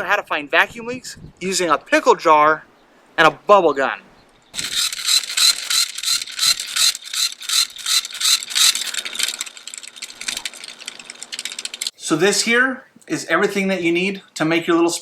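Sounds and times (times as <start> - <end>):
geared mechanism clicking: 4.6 - 12.0.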